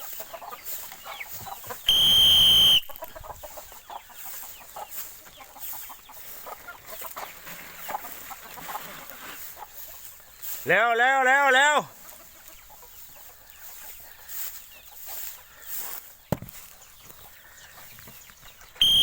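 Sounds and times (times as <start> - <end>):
chickens clucking: 0.0 - 1.9, 2.8 - 18.9
whistle blast: 1.9 - 2.9, 18.8 - 19.0.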